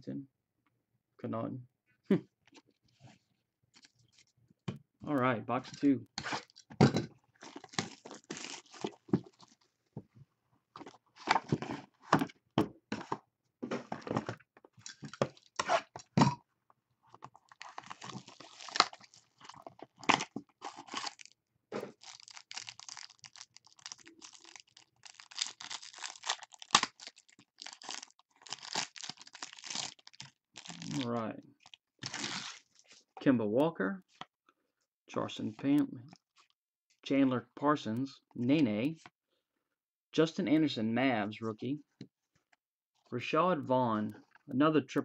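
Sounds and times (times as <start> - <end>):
plastic and cardboard packaging tearing: 7.4 - 9.6, 17.3 - 21.3, 21.9 - 32.8.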